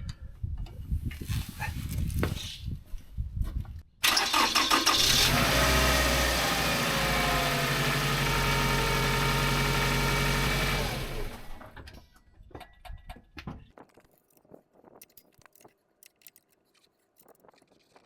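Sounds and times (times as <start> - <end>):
engine starting with clatter: 4.0 - 6.6.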